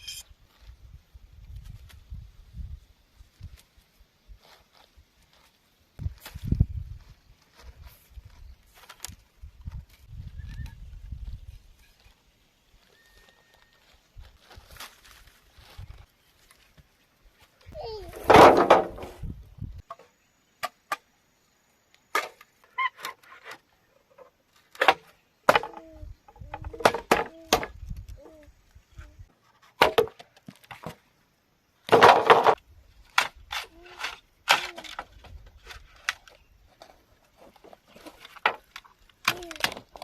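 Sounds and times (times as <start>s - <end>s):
bamboo being chopped and split: 24.7s - 27.9s, 29.7s - 31.0s, 31.9s - 36.4s, 38.0s - 40.0s.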